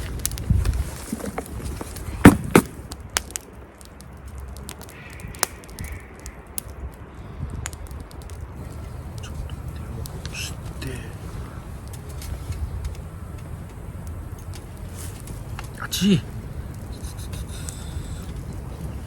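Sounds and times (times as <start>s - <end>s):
faint distant calls: 8.6s - 12.2s.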